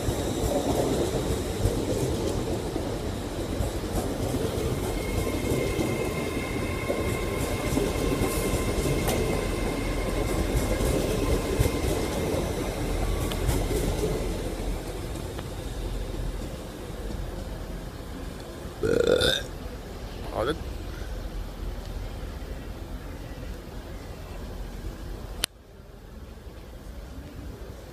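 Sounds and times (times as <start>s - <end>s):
train wheels rumbling on rail: 0.0s - 18.8s.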